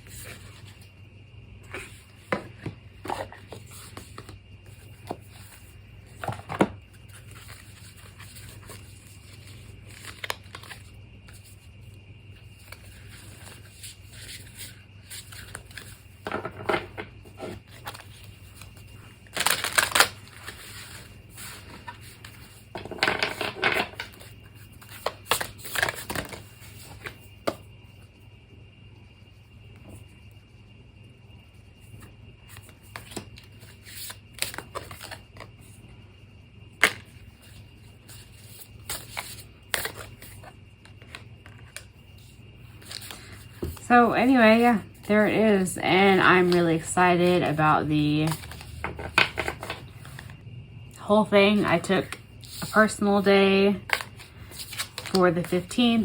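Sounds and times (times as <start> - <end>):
paper or plastic crinkling: 17.7 - 22.4.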